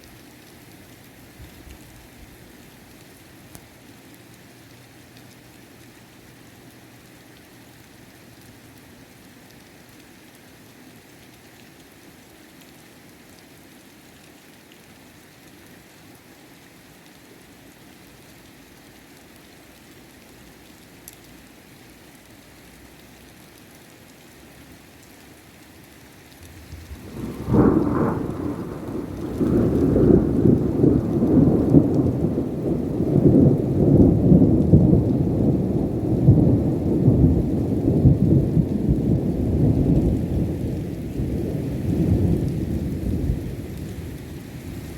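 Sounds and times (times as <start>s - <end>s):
steady rain: 0.0s - 44.9s
thunderclap and rumble: 26.4s - 44.9s.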